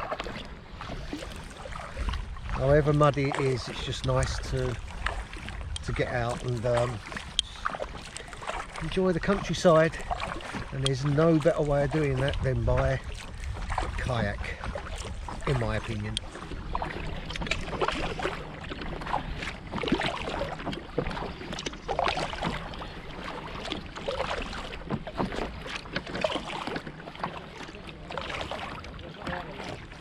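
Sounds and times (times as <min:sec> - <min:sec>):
wind rumble on microphone: 0:00.0 - 0:22.7
paddle splashing water: 0:00.0 - 0:30.0.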